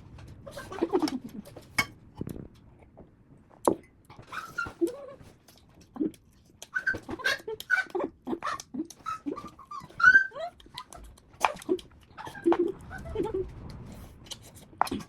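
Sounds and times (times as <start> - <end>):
dog whimpering: 0.5 - 1.5, 4.2 - 5.3, 6.6 - 11.2.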